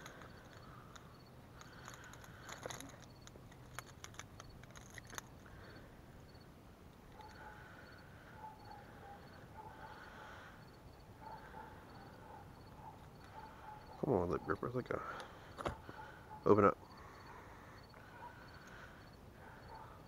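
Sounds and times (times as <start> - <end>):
metal clicks and rattles: 0.0 - 5.5.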